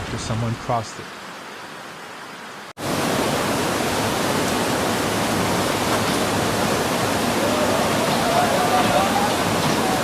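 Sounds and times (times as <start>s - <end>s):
floodwater rushing: 2.7s - 10.0s.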